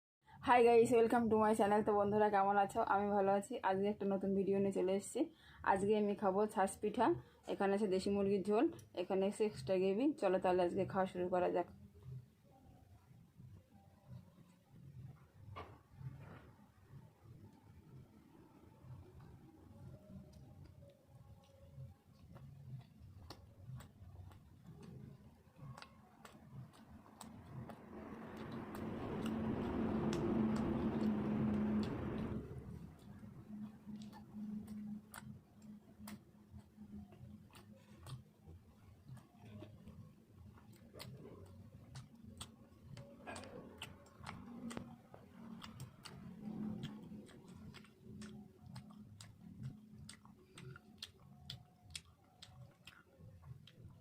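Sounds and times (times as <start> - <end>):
wet chewing clicks and smacks: 13.4 - 54.0.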